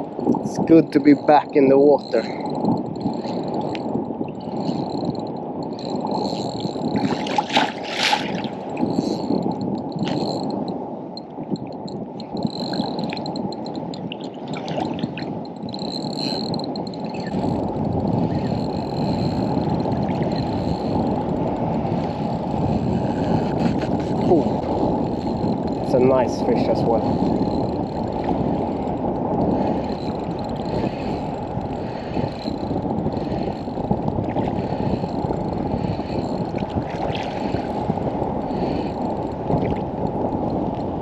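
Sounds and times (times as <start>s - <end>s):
sea water sloshing and splashing: 6.1s - 9.4s, 13.9s - 17.4s, 36.5s - 37.9s.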